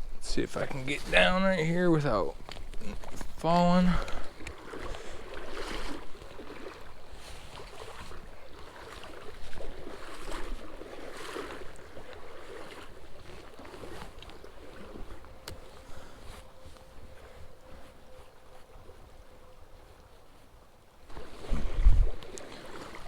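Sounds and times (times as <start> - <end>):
running creek water: 0.0 - 23.0
wind rumble on microphone: 21.1 - 23.0.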